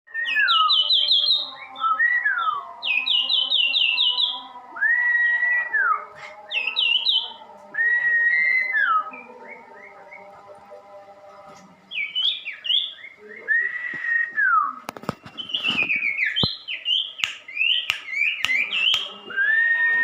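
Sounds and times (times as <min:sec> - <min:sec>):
songbird singing: 0:00.1 - 0:20.0.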